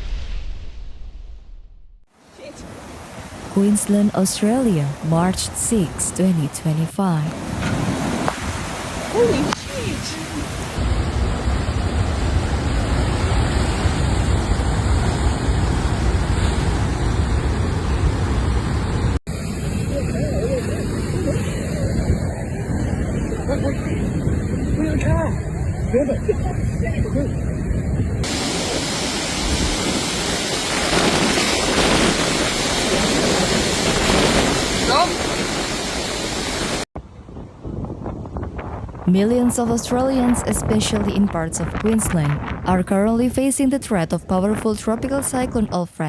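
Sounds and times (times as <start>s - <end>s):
rushing water: 2.1s - 6.5s, 7.3s - 27.2s, 28.2s - 36.9s
surf crashing: 2.1s - 36.9s
wind buffeting microphone: 7.4s - 35.8s, 36.6s - 45.8s
storm wind rushing: 7.4s - 43.4s.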